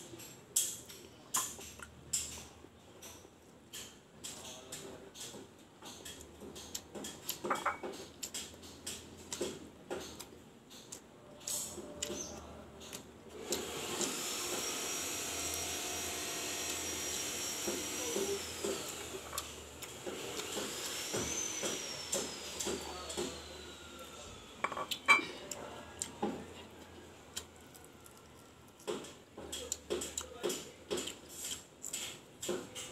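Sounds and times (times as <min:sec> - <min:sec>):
dishes and cutlery clinking: 0:07.1 - 0:08.1, 0:24.6 - 0:25.4
power tool whining: 0:13.4 - 0:24.6.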